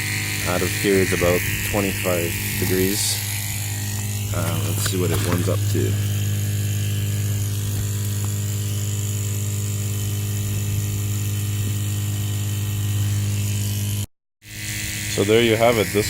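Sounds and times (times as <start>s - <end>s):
water pump electric hum: 0.0s - 16.0s.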